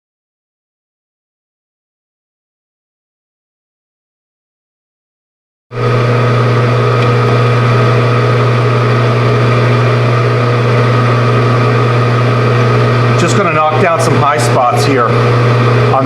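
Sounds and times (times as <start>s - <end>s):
gear and motor whine: 5.8s - 16.0s
metal lathe humming: 5.8s - 16.0s.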